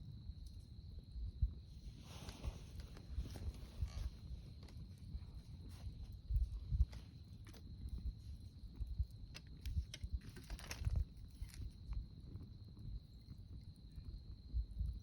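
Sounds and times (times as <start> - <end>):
campfire crackling and popping: 2.5 - 14.4.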